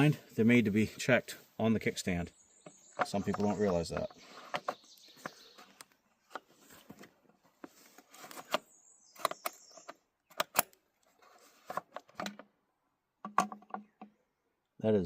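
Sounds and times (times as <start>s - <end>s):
light clicks and knocks: 2.6s - 7.8s
brief rustle: 3.0s - 12.3s.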